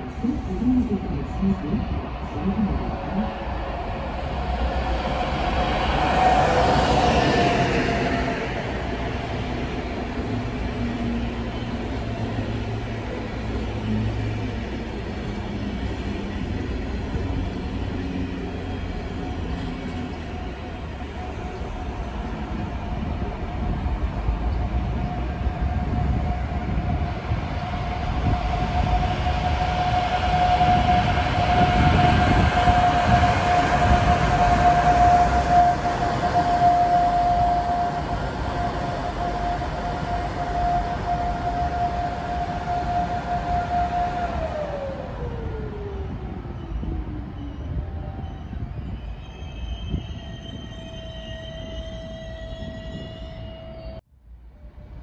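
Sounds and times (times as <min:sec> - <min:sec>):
steady high-pitched tone: 0:00.0 - 0:09.2, 0:28.9 - 0:44.9
train coaches rumbling: 0:00.0 - 0:54.0.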